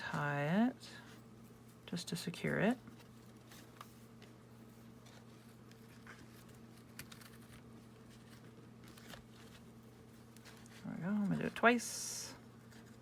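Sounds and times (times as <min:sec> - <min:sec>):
rope handling rustles: 0:01.0 - 0:11.8.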